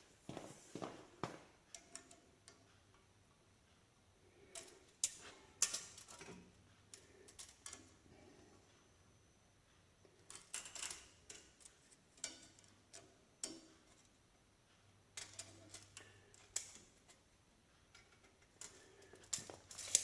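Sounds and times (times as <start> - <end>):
light clicks of tools handled: 17.9 - 20.0.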